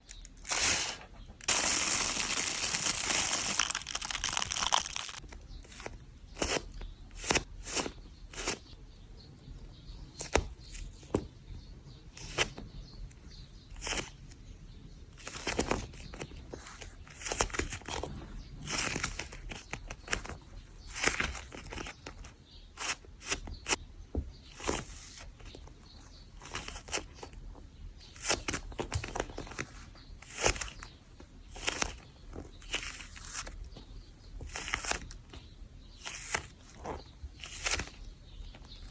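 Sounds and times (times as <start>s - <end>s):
squishy toy crinkling squeezed: 0.4s - 5.2s.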